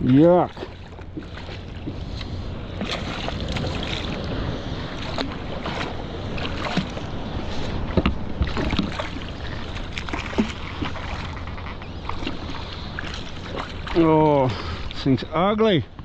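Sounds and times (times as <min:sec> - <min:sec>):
wind on microphone: 0:00.0 - 0:15.0
water splashing around kayak: 0:00.0 - 0:15.1
knocks against hull: 0:07.9 - 0:09.2.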